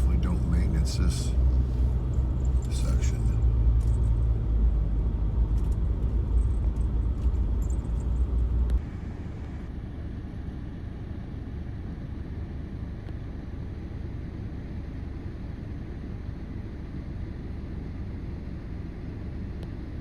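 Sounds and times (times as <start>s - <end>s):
engine and road rumble: 0.0s - 20.0s.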